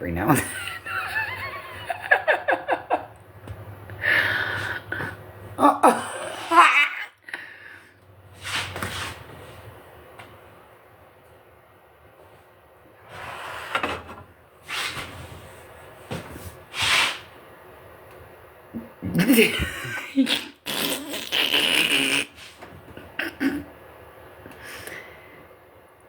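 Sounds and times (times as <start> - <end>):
fart noises: 18.8 - 23.6.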